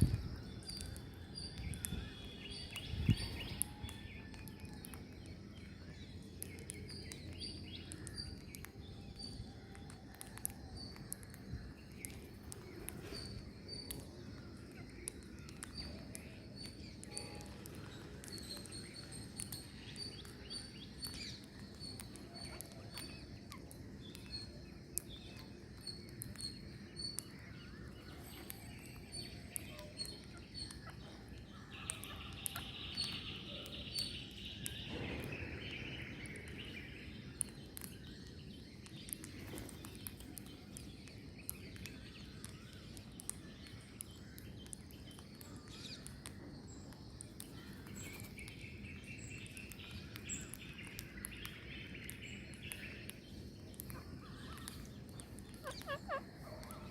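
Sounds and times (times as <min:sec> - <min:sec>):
birds chirping: 0:00.0 - 0:56.9.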